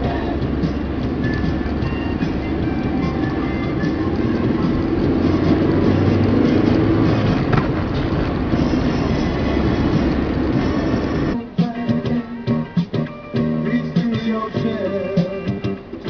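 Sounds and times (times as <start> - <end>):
tram rumbling along rails: 0.0 - 11.4.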